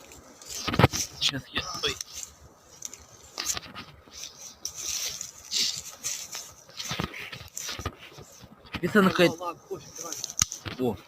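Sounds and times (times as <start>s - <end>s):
rustling in sticks and leaves: 0.0s - 11.0s
sharp knocks and cracks: 10.2s - 10.9s.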